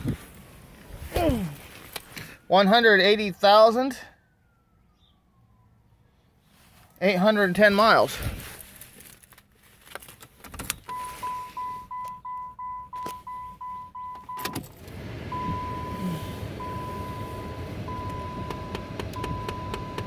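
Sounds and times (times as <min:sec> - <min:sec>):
car engine cranking and starting: 0:10.0 - 0:20.0
dashboard warning chime beeping: 0:10.9 - 0:20.0.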